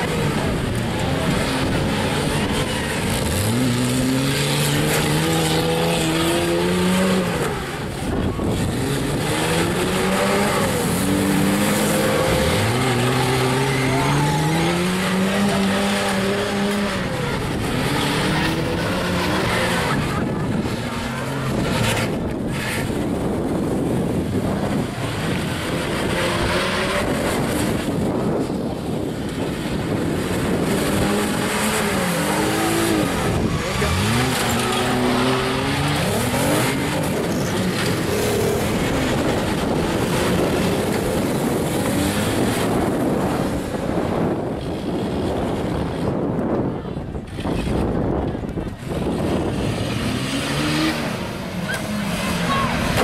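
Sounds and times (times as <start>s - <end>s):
car engines revving: 0.0s - 53.0s
tyres skidding: 0.0s - 53.0s.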